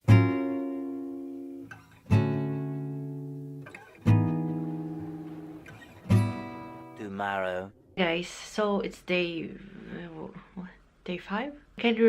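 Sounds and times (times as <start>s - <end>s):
acoustic guitar strumming chords: 0.0s - 8.1s.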